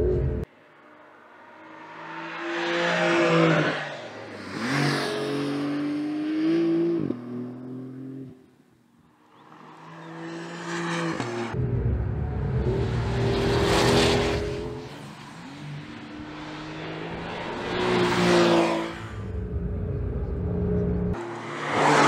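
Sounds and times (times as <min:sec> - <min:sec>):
car engine accelerating: 0:09.6 - 0:22.0.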